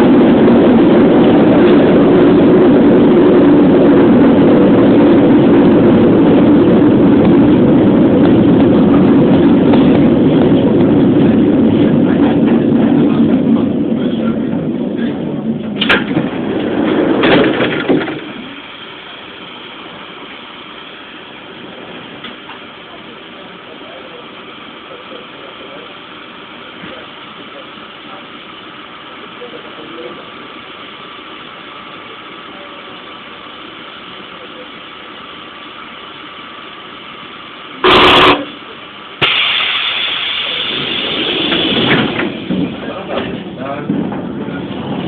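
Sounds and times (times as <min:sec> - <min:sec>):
train equipment humming: 0:00.0 - 0:45.0
train horn blast: 0:37.8 - 0:38.6
compressed air hissing: 0:39.2 - 0:41.8.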